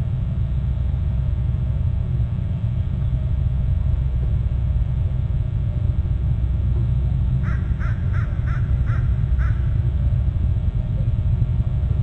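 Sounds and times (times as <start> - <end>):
steady low rumble: 0.0 - 12.0
bird cawing: 7.4 - 9.8.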